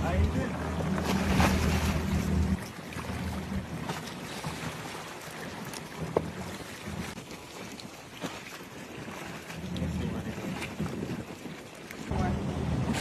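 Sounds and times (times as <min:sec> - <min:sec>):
low steady rumble: 0:00.0 - 0:04.6, 0:12.1 - 0:13.0.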